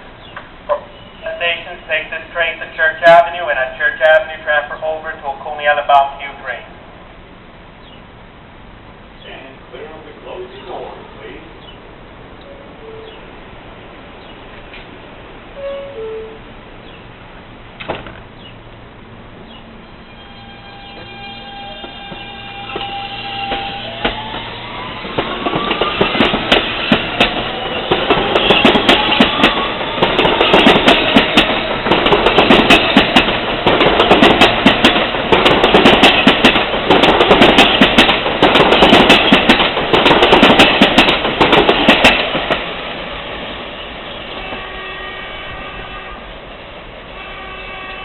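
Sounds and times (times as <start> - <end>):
train wheels clattering on rails: 21.8 - 43.5.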